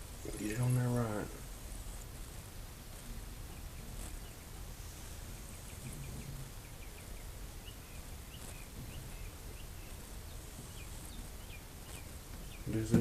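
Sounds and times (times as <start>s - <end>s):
faint bird chirps: 3.4s - 13.0s.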